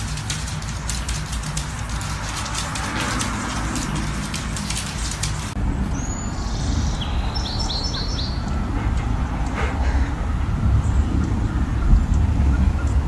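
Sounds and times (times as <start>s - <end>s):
sharp clicks and crackle: 0.0s - 5.6s
low outdoor rumble: 0.0s - 13.0s
bird chirping: 5.8s - 8.7s.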